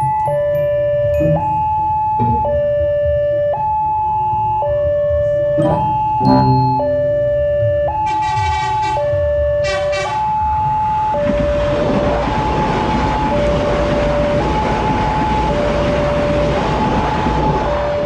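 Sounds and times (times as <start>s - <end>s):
level crossing alarm: 0.0s - 11.5s
train horn: 8.1s - 10.3s
train wheels rumbling on rail: 11.2s - 18.0s.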